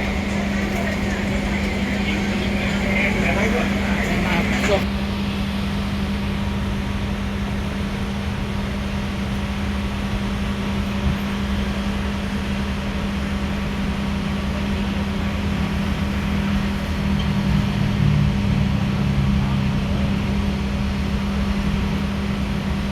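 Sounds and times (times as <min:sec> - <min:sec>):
even mechanical noise: 0:00.0 - 0:04.9
railway carriage hum and rumble: 0:00.0 - 0:22.9.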